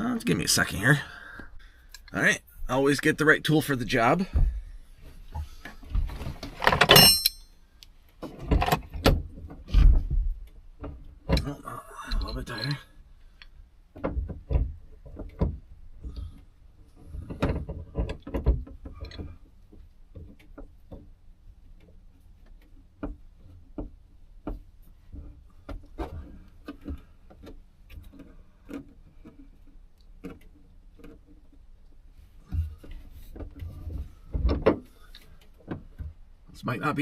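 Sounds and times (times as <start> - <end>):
hand tool clicks and knocks: 6.6 - 7.6.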